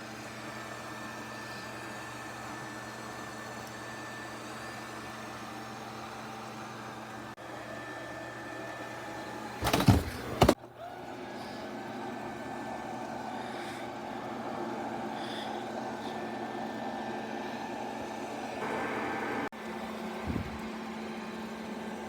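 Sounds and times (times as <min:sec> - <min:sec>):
robot vacuum motor hum: 0:09.6 - 0:11.2.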